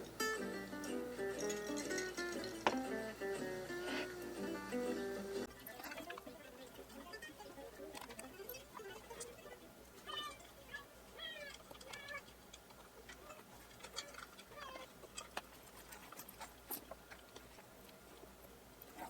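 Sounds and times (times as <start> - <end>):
faint clicks and taps: 7.9 - 19.0
high animal calls: 13.2 - 15.0.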